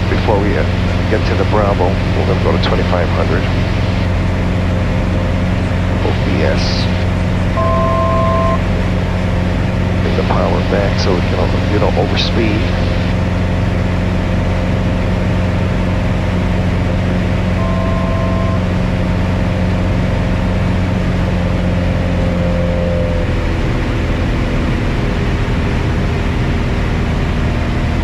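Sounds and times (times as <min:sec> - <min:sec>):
aircraft engine and propeller droning: 0:00.0 - 0:28.0
electronic tone: 0:06.2 - 0:08.7, 0:17.4 - 0:19.7.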